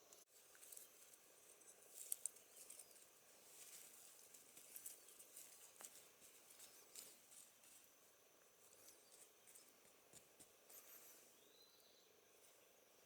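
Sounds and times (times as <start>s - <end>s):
faint rustles: 0.3s - 8.0s
faint light ticks: 2.0s - 2.9s.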